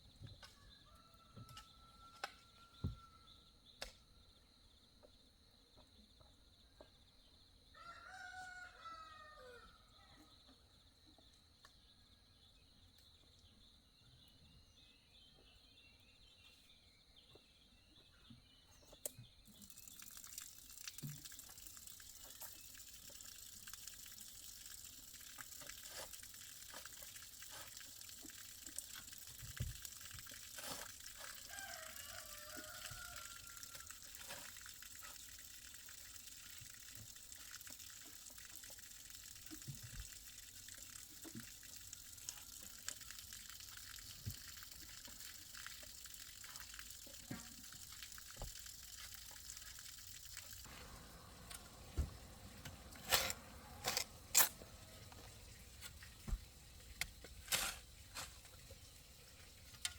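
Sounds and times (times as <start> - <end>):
water running: 19.5 - 59.9.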